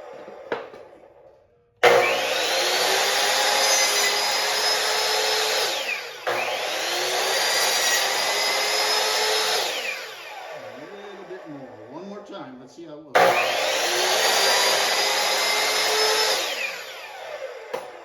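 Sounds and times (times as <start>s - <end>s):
electric drill whining: 0.0s - 12.2s, 13.2s - 18.0s.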